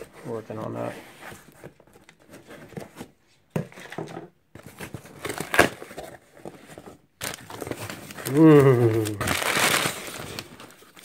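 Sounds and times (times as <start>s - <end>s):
packaging crinkling and rustling: 3.7s - 11.0s.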